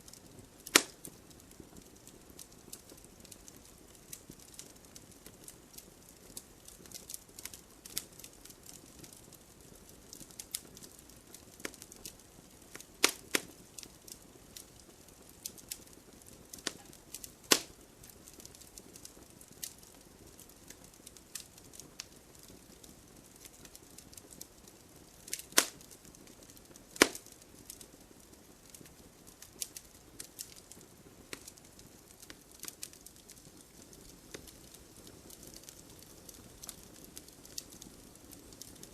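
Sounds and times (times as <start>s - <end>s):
faint hiss of fire: 0.0s - 38.9s
wood fire crackling: 0.0s - 38.9s
loud fire pops: 0.1s - 38.9s.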